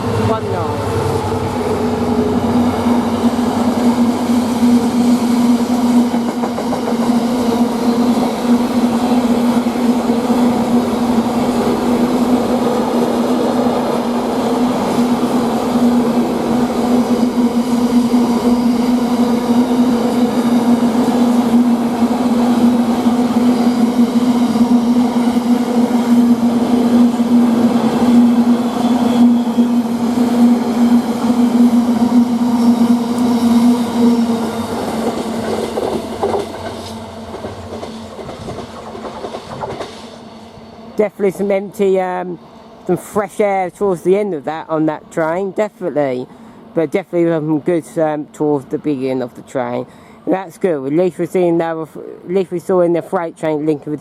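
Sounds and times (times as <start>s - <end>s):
freight train wheels rumbling on rails: 0.0s - 49.5s
diesel locomotive droning hum: 0.0s - 54.0s.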